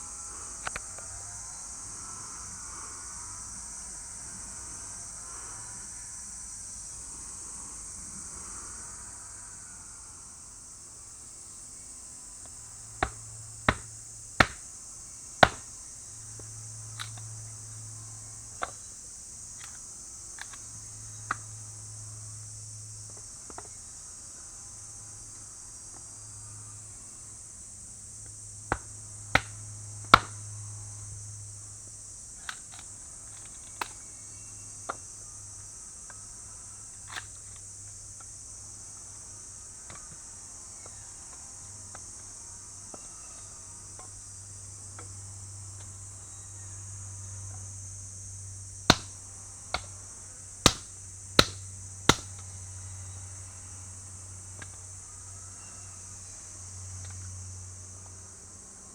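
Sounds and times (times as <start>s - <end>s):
crickets and insects chirping: 0.0s - 58.9s
sharp knocks: 13.0s - 14.6s, 15.4s - 15.7s, 28.7s - 29.6s, 30.2s - 30.4s, 48.9s - 49.2s, 50.7s - 52.3s.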